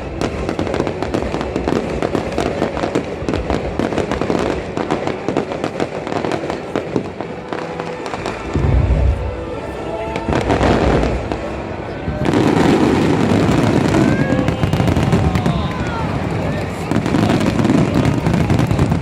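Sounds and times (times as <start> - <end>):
fireworks crackling and popping: 0.0 - 19.0
heavy deep boom: 8.4 - 14.0.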